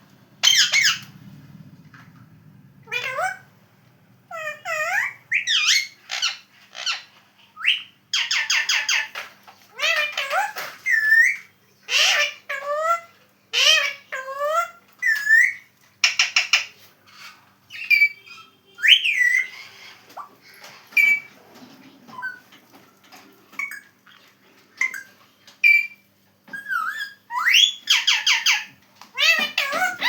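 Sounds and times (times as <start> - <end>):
parakeet whistling and calling: 0.4 - 1.1, 4.3 - 9.2, 9.8 - 16.7, 17.7 - 21.4, 22.1 - 22.5, 24.8 - 30.0.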